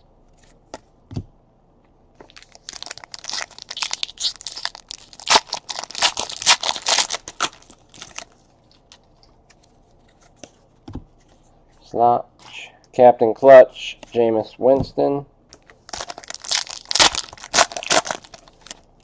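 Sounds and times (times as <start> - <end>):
wrapper being torn and crinkled: 2.3 - 9.0, 15.9 - 18.9.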